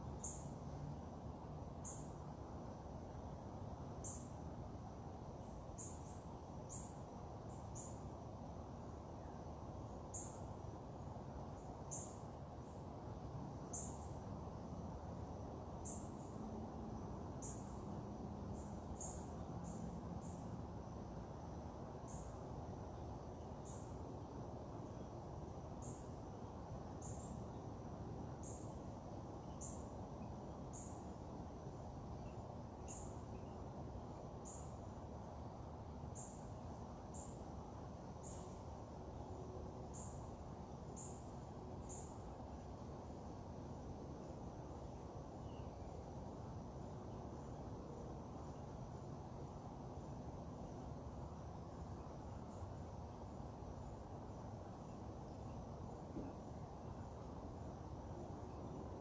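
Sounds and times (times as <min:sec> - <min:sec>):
low background noise: 0:00.0 - 0:59.0.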